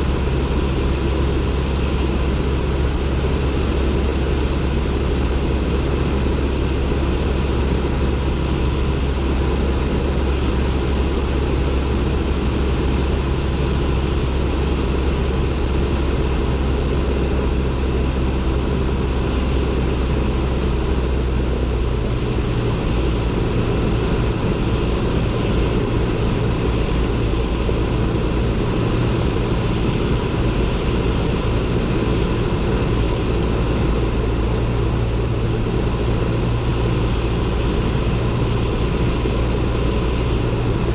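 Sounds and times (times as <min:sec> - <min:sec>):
propeller plane engine droning: 0:00.0 - 0:40.9.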